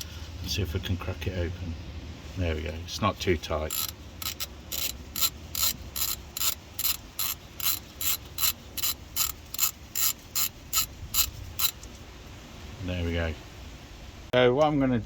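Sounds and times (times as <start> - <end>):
ratchet clicking: 3.7 - 11.9.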